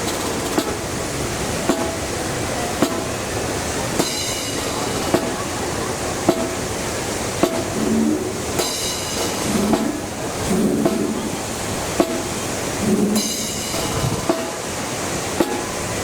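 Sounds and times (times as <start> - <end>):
wind buffeting microphone: 0.0 - 16.0
sharp drum hits: 1.7 - 2.1, 4.0 - 5.5, 6.3 - 6.8, 7.4 - 14.8, 15.4 - 15.9.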